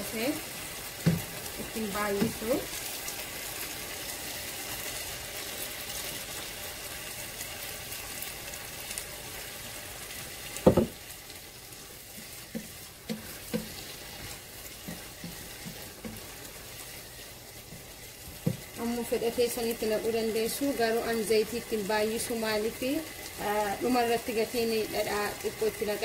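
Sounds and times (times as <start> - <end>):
tomatoes sizzling in oil: 0.0 - 26.0
wooden spoon stirring: 10.7 - 18.8.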